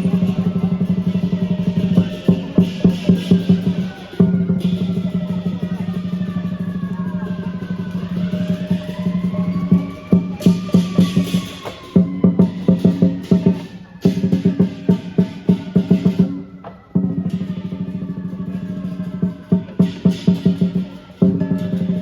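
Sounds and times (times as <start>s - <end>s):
cymbals crashing: 0.0s - 6.5s, 9.6s - 16.4s
fast drum roll: 0.0s - 16.4s, 17.0s - 22.0s
lion drum beating: 0.0s - 22.0s.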